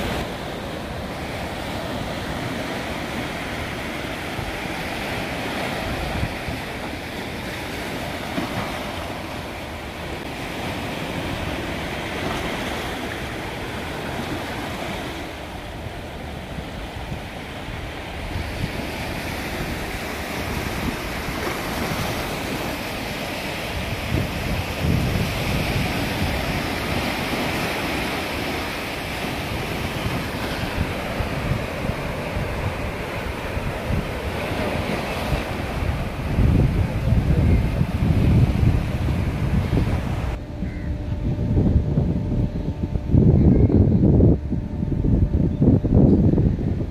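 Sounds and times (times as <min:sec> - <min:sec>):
sea waves washing ashore: 0:00.0 - 0:43.2
wind buffeting microphone: 0:00.0 - 0:46.9.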